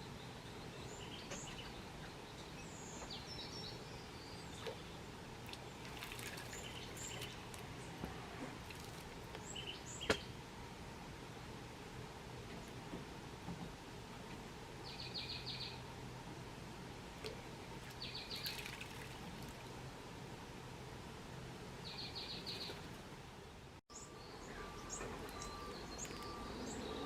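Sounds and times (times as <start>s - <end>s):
bird chirps: 21.8s - 22.8s, 23.9s - 27.0s.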